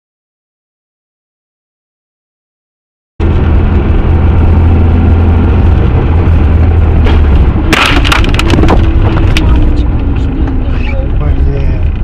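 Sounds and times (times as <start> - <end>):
vehicle rumble: 3.2 - 12.0
sharp knocks and cracks: 7.0 - 9.6.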